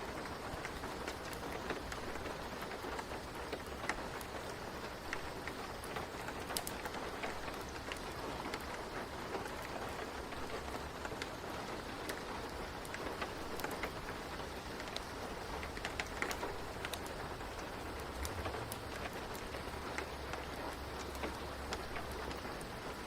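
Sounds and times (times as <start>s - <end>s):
rain hiss: 0.0s - 23.0s
sharp ticks and pops: 0.0s - 23.0s.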